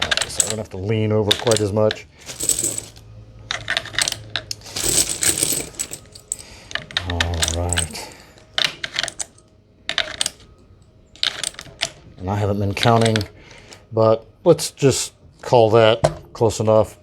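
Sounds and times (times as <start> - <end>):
rattling scrape: 1.4 - 7.9.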